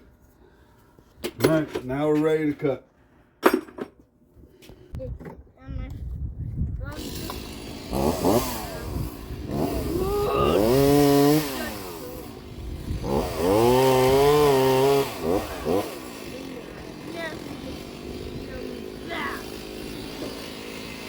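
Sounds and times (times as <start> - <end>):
chainsaw engine revving: 6.9 - 21.0.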